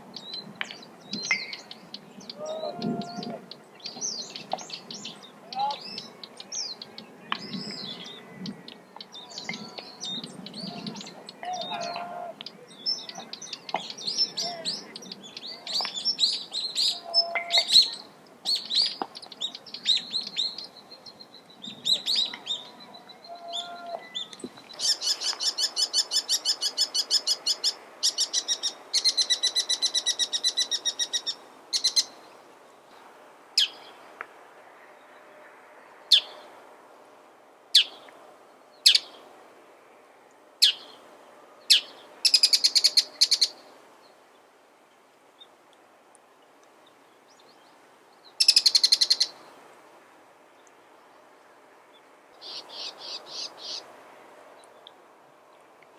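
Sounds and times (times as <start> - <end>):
birds chirping: 0.0 - 33.0, 50.5 - 53.9.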